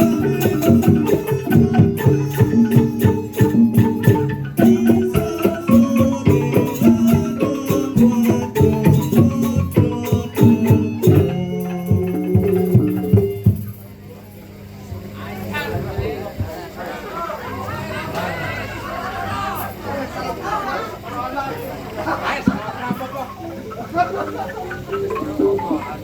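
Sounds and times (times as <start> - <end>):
drums: 0.0 - 13.9
tuned percussion ringing notes: 0.0 - 14.4, 22.5 - 26.0.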